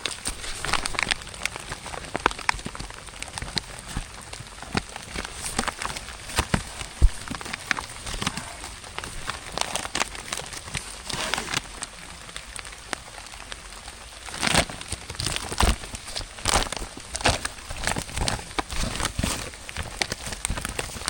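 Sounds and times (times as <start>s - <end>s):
sharp crackling taps: 0.0s - 10.9s
rain pattering: 0.0s - 21.0s
rustling: 0.0s - 21.0s.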